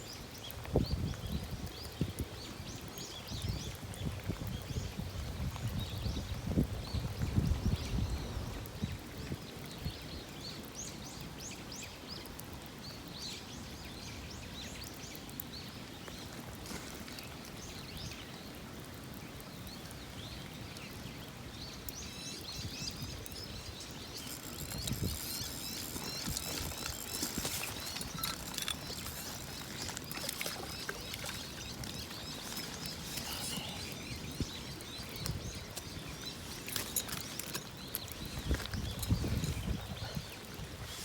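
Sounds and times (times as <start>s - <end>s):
light rain pattering: 0.0s - 41.0s
small birds chirping: 19.2s - 41.0s.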